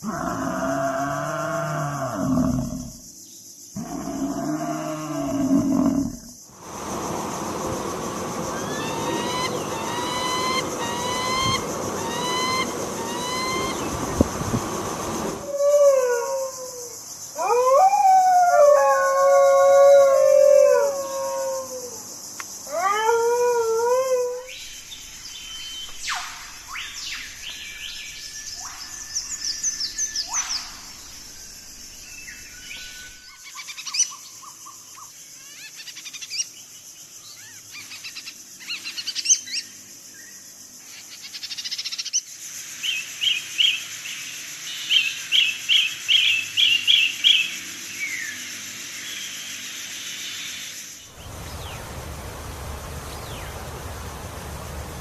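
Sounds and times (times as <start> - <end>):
steady high hiss: 5.2 - 17.4, 24.5 - 33.5, 36.0 - 55.0
birds whistling and chirping: 8.4 - 15.0.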